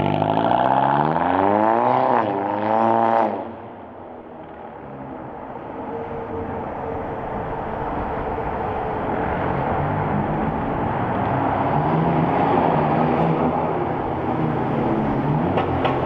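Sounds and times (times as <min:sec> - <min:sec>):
car engine through loud exhaust: 0:00.0 - 0:16.0.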